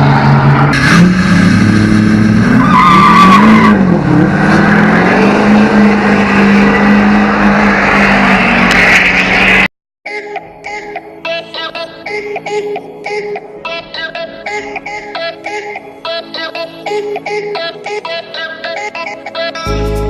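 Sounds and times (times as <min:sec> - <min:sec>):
truck engine revving: 0:00.0 - 0:09.7.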